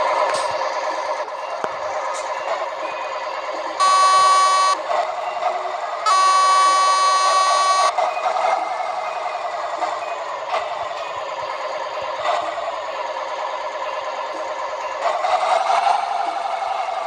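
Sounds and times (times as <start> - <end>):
truck engine running: 0.0 - 17.0
truck horn blasts: 3.8 - 4.8, 6.0 - 8.0.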